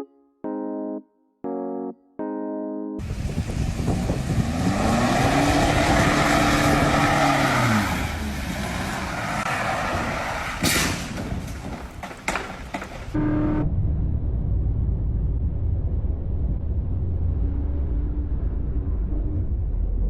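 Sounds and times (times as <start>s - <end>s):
droning vehicle engine: 3.0s - 20.0s
sharp knocks: 10.6s - 13.2s.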